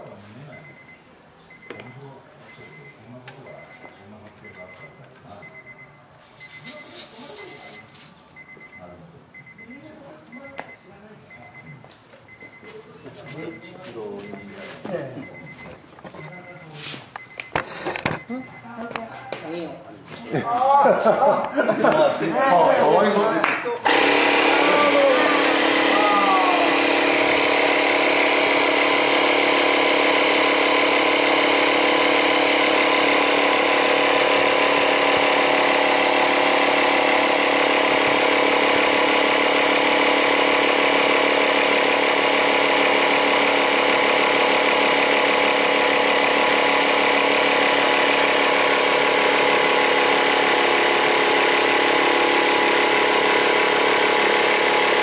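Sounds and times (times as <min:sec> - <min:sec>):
small air compressor buzzing: 0:06.2 - 0:08.2, 0:23.8 - 0:55.0.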